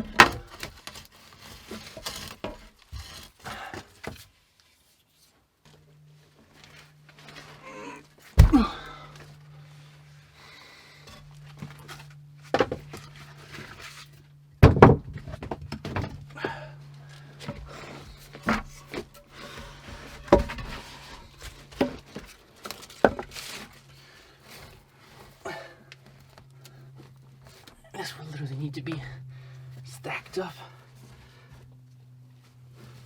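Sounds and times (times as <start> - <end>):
steady low hum: 5.6 - 33.0
thunks and knocks: 8.4 - 8.9, 14.6 - 16.2.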